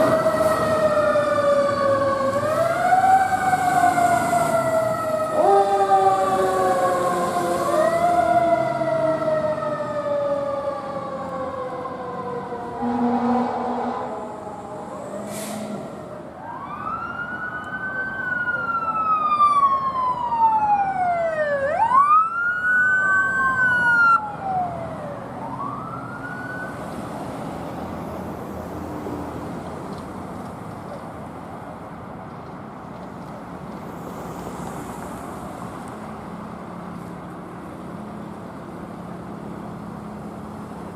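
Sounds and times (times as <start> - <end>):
emergency siren wailing: 0.0 - 27.3
vehicle and road noise: 0.0 - 40.9.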